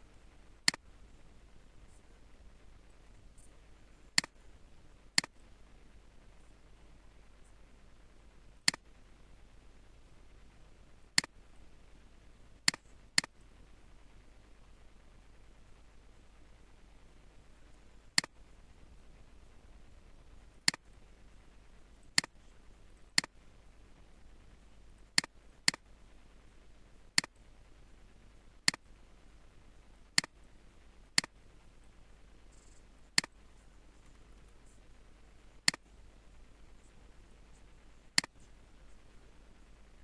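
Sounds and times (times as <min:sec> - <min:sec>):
faint low hum: 0:00.0 - 0:40.0
computer mouse clicking: 0:00.6 - 0:00.9, 0:04.2 - 0:04.4, 0:05.2 - 0:05.4, 0:08.6 - 0:08.9, 0:12.7 - 0:13.4, 0:20.6 - 0:20.9, 0:25.2 - 0:25.8, 0:28.6 - 0:28.8, 0:32.5 - 0:33.4, 0:35.6 - 0:35.9, 0:38.2 - 0:38.5.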